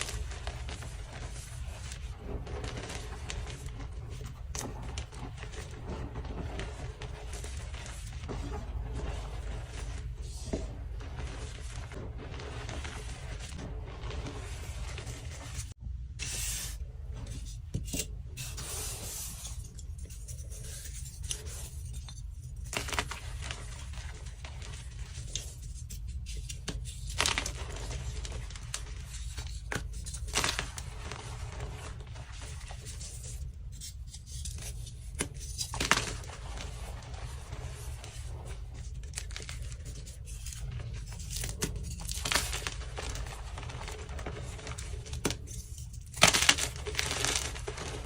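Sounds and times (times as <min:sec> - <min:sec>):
chalk being crushed: 0:33.8 - 0:48.0.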